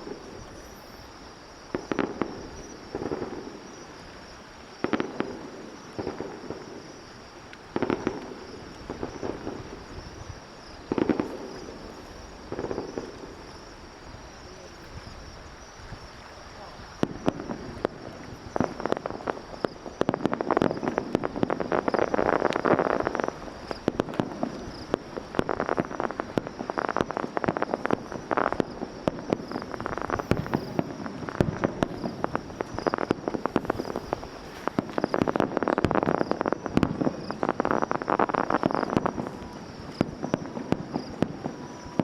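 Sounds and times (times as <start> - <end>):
firework crackling: 0.0 - 42.0
firework bangs: 1.6 - 14.7, 16.6 - 42.0.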